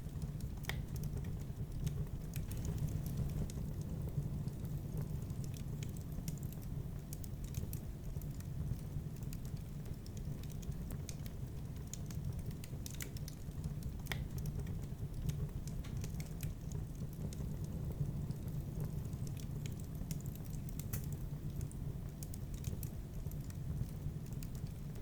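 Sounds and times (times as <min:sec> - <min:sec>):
low fire rumble: 0:00.0 - 0:25.0
wood fire crackling and popping: 0:00.0 - 0:25.0.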